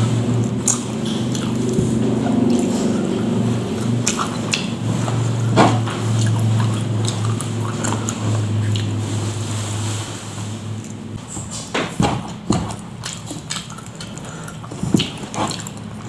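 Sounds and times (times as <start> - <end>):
low steady hum: 0.0 - 16.0
wet chewing and lip smacks: 0.3 - 9.0, 12.3 - 16.0.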